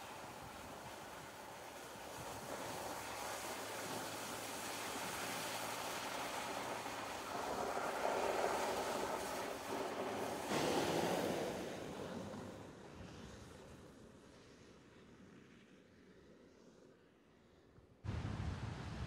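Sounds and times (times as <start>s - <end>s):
tyres swishing through slush: 0.0s - 13.9s.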